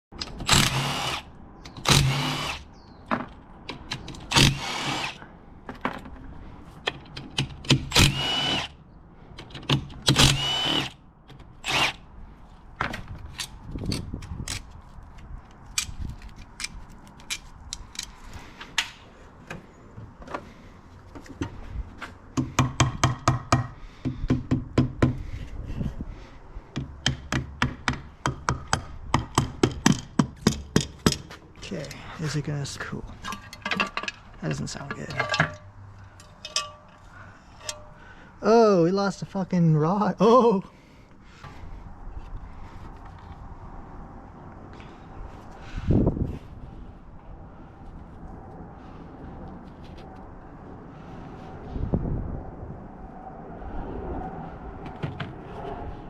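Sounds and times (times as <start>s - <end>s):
power drill whirring: 0.4s - 2.6s, 4.3s - 5.2s, 7.9s - 8.7s, 10.2s - 11.0s, 11.6s - 12.0s.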